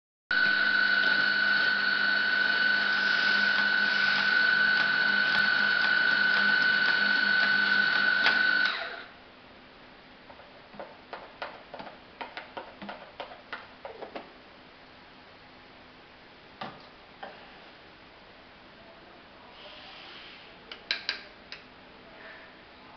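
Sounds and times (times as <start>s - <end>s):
coffee machine high whine: 0.3s - 9.1s
coffee machine pump hum: 0.3s - 9.1s.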